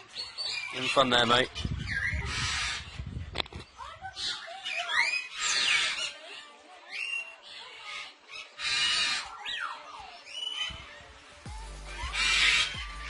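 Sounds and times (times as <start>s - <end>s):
parrots screeching: 1.8s - 3.0s, 4.0s - 11.0s, 11.9s - 13.0s.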